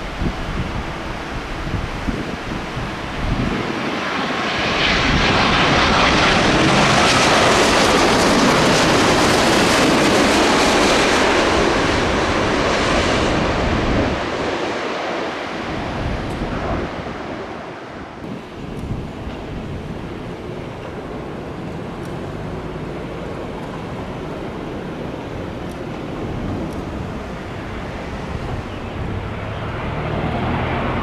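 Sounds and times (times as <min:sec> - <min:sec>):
jet airliner engine roar: 0:00.0 - 0:31.0.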